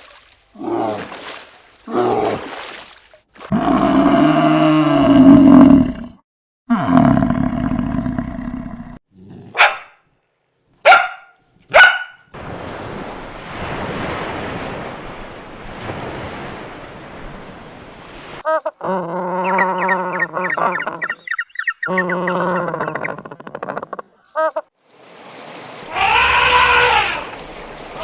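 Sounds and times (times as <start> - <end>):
dog barking: 9.5 - 10.0, 10.8 - 12.2
wavering animal call: 18.5 - 24.6.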